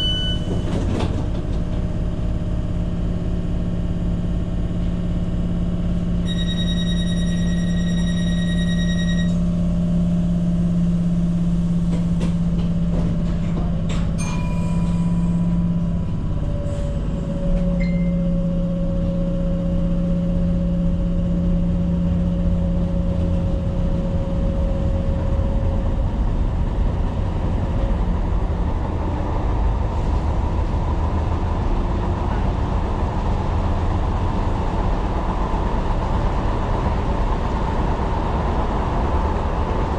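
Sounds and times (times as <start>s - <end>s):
high steady tone: 0.0s - 0.6s, 6.2s - 9.4s
train rumbling on track: 0.0s - 39.9s.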